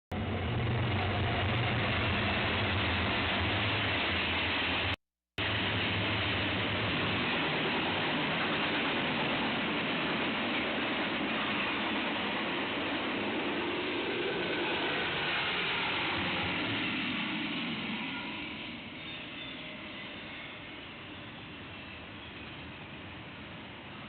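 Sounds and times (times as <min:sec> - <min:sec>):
freight train passing: 0:00.1 - 0:24.0.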